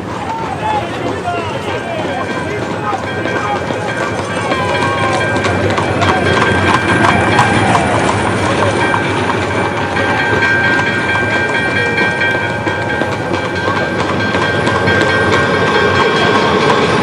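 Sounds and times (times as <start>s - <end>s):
high wheel squeal: 0.0s - 12.5s
train rumbling on rails: 0.0s - 17.0s.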